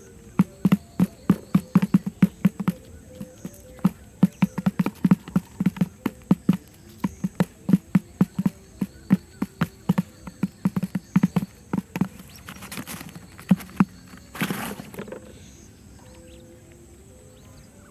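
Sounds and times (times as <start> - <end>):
dull knocks: 0.0 - 15.2
rustling scrape: 12.0 - 15.1.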